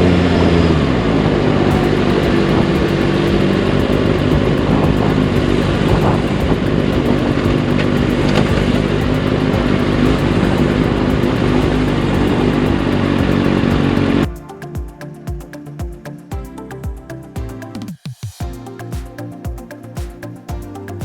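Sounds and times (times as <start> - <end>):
motorcycle engine running: 1.7 - 14.4
music with a regular beat: 1.7 - 21.0.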